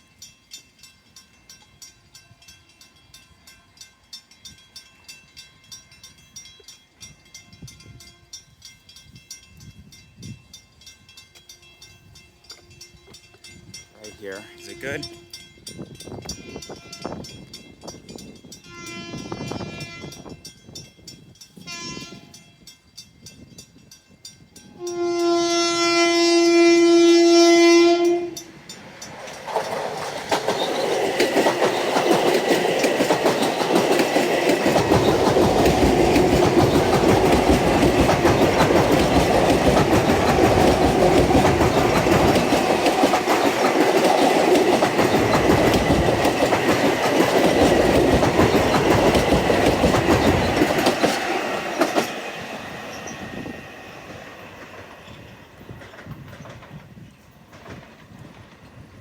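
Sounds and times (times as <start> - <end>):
train horn blasts: 14.2 - 15.5, 16.3 - 17.3, 18.6 - 20.4, 21.6 - 22.4, 24.7 - 28.5
train wheels rushing on rails: 26.0 - 59.0.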